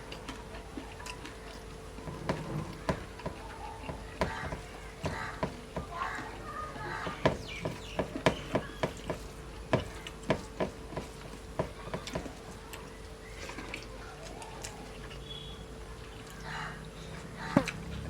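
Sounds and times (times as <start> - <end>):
wet chewing smacks and clicks: 0.0 - 1.8, 12.0 - 15.4, 17.2 - 18.0
mixing food by hand: 0.0 - 18.0.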